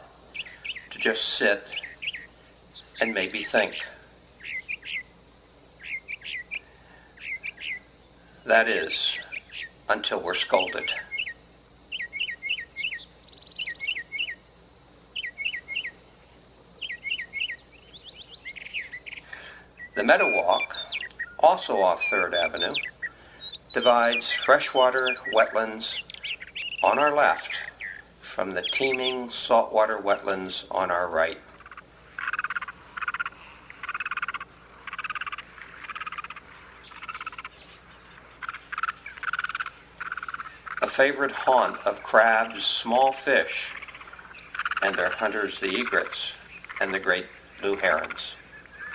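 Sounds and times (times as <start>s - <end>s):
frogs trilling: 0.0s - 48.9s
songbird whistling: 0.4s - 0.9s, 1.7s - 3.1s, 4.4s - 5.1s, 5.8s - 8.5s, 10.8s - 14.4s, 15.2s - 16.0s, 16.8s - 27.0s, 48.0s - 48.9s.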